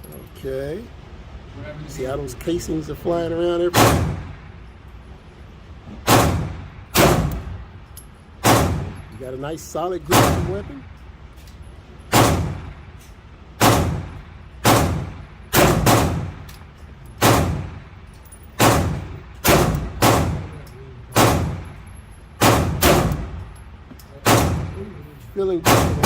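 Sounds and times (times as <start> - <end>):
echoing pistol shots: 3.8 - 4.4, 6.1 - 7.6, 8.4 - 9.0, 10.1 - 10.6, 12.1 - 12.8, 13.6 - 16.5, 17.2 - 17.9, 18.6 - 20.5, 21.2 - 21.7, 22.4 - 23.4, 24.2 - 24.8, 25.6 - 26.0.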